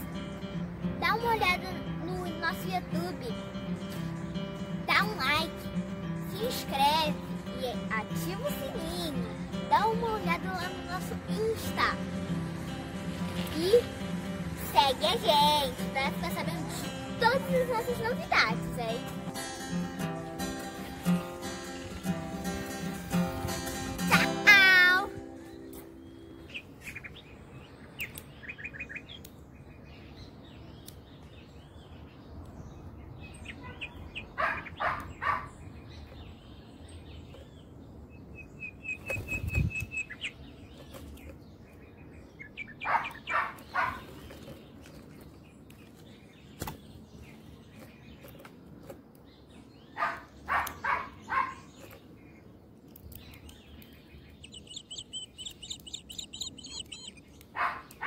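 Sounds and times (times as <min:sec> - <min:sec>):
harsh bird calls: 0:19.3 - 0:32.1, 0:32.8 - 0:58.0
high bird twittering: 0:25.1 - 0:29.8, 0:38.2 - 0:41.0, 0:41.7 - 0:44.1, 0:53.0 - 0:58.0
soft bird chirps: 0:25.3 - 0:58.0.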